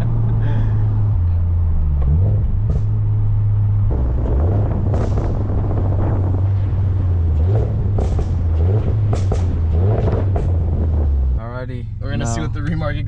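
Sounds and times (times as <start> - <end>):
car exhaust drone: 0.0 - 13.0.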